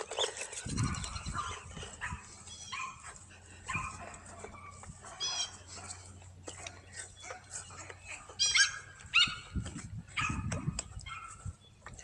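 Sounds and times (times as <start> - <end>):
dog barking: 0.8 - 6.1, 10.2 - 11.4.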